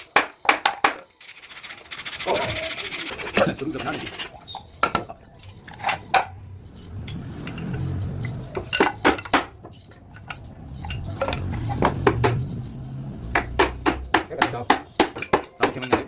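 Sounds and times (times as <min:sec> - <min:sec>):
hard objects knocking and clinking: 0:00.0 - 0:01.2, 0:03.3 - 0:06.4, 0:07.0 - 0:12.6, 0:13.2 - 0:16.0.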